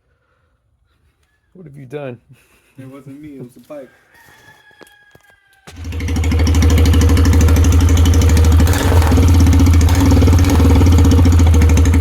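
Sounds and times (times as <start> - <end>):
motorcycle engine idling: 5.7 - 12.0.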